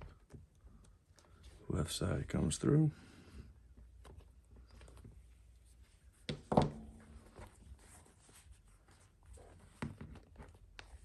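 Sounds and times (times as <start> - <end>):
lace rustling through glove: 6.9 - 11.0.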